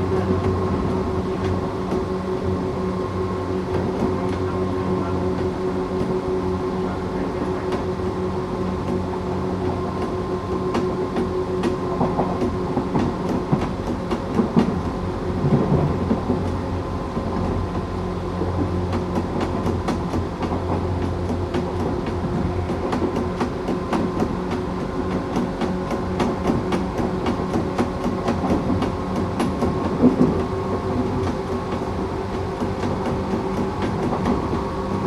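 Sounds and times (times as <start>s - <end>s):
electric train rumbling: 0.0s - 35.0s
wheels clicking over rail joints: 18.5s - 35.0s.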